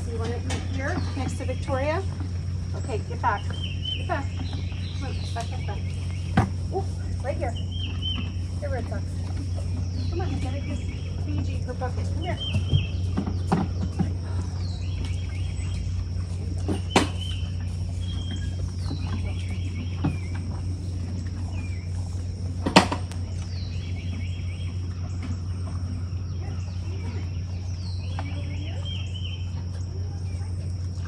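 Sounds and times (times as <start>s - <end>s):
songbird singing: 0.0s - 31.0s
steady low hum: 0.0s - 31.0s
sharp knocks: 22.6s - 23.1s.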